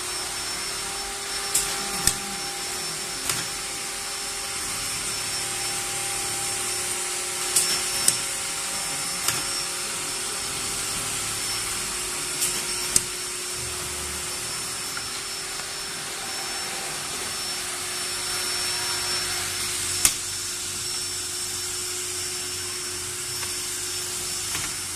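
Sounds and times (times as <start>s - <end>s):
sewing machine motor hum: 0.0s - 24.9s.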